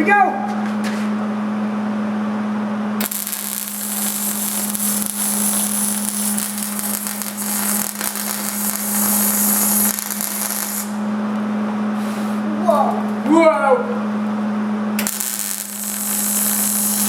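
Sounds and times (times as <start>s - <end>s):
low hum: 0.4s - 16.7s
arc welder crackling sizzle: 3.0s - 12.4s, 14.2s - 17.0s.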